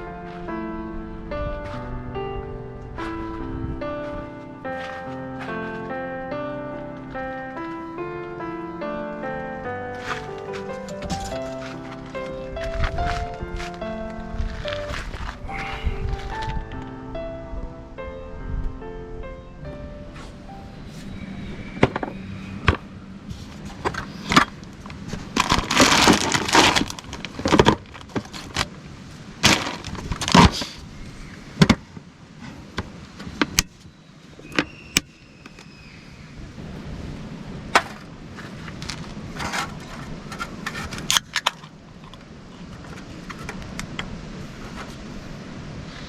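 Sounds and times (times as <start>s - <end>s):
rustling: 2.9s - 6.1s, 9.2s - 16.9s, 20.1s - 33.9s, 37.7s - 45.2s
camping gear clinking and knocking: 9.9s - 16.5s, 23.4s - 28.8s, 29.4s - 30.8s, 37.7s - 44.1s.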